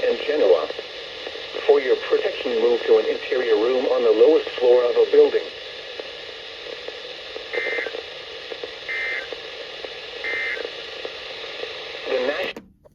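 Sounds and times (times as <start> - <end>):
radio broadcast hiss: 0.0 - 12.6
warbling data bursts: 7.5 - 8.0.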